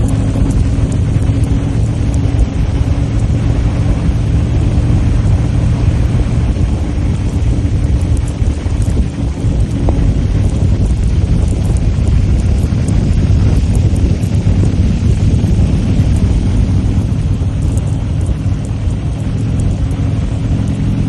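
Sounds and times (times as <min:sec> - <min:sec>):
motorcycle engine running: 0:00.0 - 0:21.0
wind rumble: 0:00.0 - 0:21.0.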